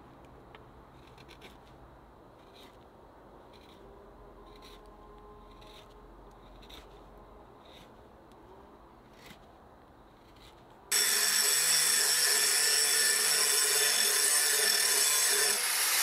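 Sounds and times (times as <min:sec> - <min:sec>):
hand tool scraping wood: 0:01.0 - 0:01.7, 0:02.4 - 0:02.8, 0:03.5 - 0:08.0, 0:09.1 - 0:09.5, 0:10.1 - 0:16.0.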